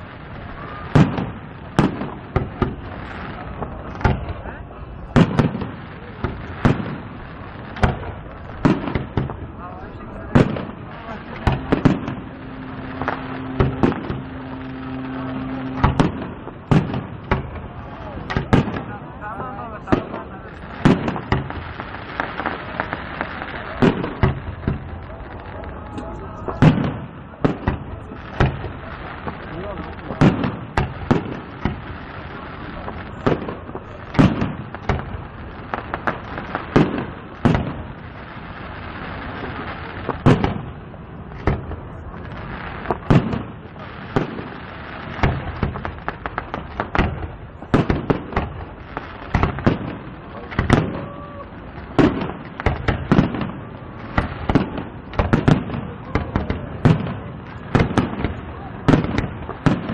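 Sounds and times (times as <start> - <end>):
fireworks bangs: 0.0 - 59.9
small fireworks cracks: 0.0 - 59.9
low rumble: 9.4 - 18.3
steady low hum: 10.6 - 17.8.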